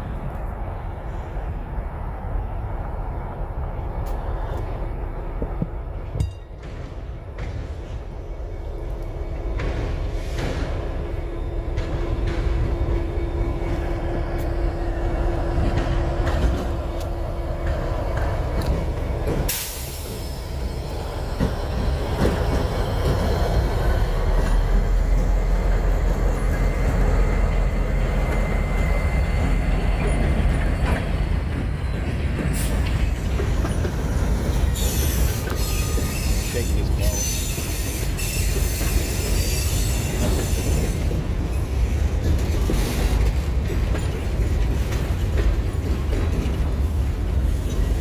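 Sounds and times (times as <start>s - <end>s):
freight train wheels rumbling: 0.0s - 48.0s
wheels squealing on rail: 9.2s - 44.2s.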